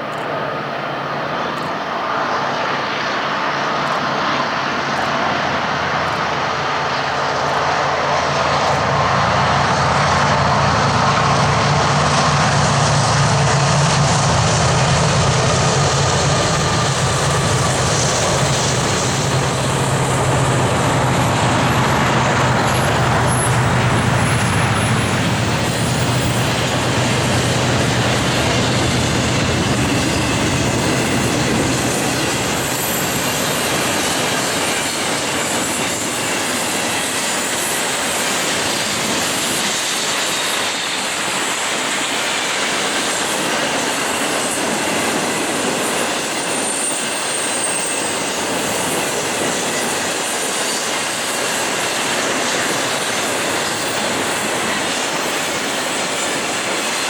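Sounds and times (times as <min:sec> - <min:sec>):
low locomotive hum: 0:00.0 - 0:36.6
freight train wheels rumbling: 0:01.1 - 0:57.0
clickety-clack over rail joints: 0:03.7 - 0:57.0
faint high wheel squeal: 0:16.8 - 0:57.0.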